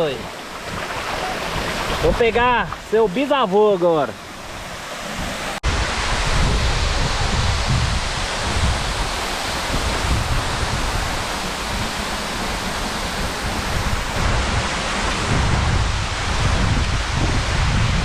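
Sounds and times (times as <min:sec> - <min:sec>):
waterfall rushing: 0:00.0 - 0:18.0
wind buffeting microphone: 0:04.4 - 0:18.0.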